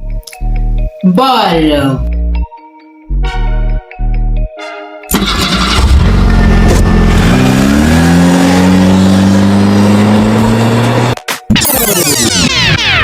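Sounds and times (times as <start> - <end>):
engine revving: 5.1 - 12.8.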